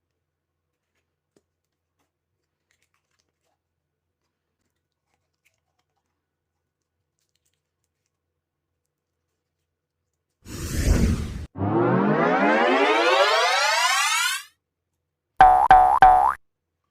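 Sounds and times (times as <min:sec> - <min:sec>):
faint small clicks and taps: 0:06.8 - 0:08.2.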